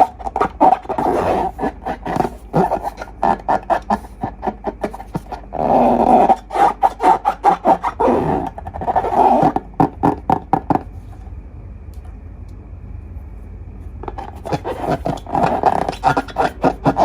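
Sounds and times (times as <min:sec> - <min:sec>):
slime squelching: 0:00.0 - 0:10.6.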